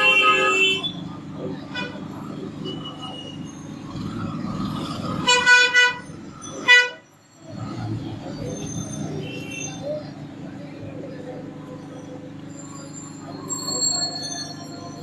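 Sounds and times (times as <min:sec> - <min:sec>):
vehicle horn honking: 0:00.0 - 0:01.0.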